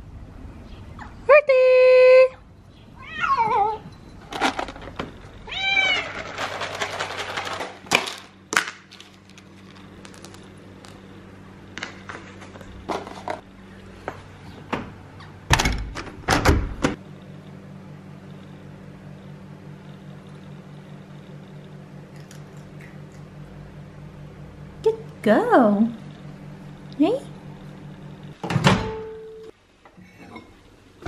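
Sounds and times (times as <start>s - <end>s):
cat meowing: 3.0s - 3.8s, 5.5s - 6.2s.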